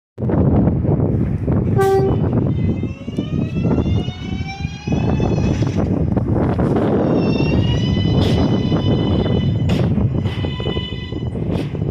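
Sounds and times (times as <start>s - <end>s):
wheels rumbling on rail: 0.2s - 11.9s
train horn toot: 1.8s - 2.3s.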